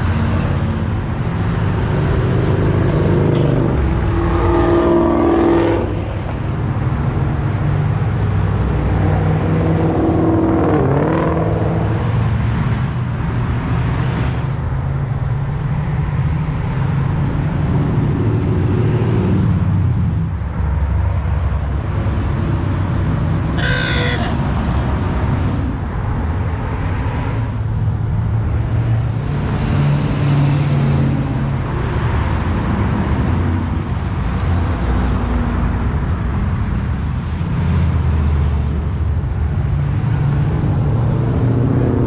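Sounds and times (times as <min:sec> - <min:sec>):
car engines rumbling in traffic: 0:00.0 - 0:42.0
short car horn toot: 0:23.6 - 0:24.4.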